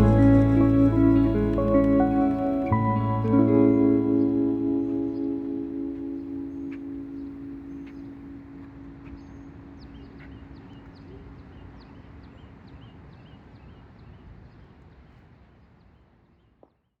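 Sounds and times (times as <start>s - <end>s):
music held note: 0.0s - 10.1s
songbird chirping: 0.0s - 14.1s.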